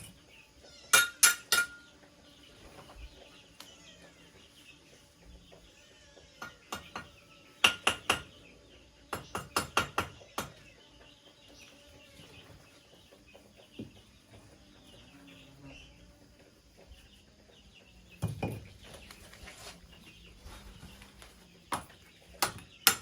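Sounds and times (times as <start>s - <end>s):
chickens clucking: 0.0s - 9.5s, 10.1s - 22.8s
tool knocking on bamboo: 6.4s - 8.3s, 9.2s - 10.6s.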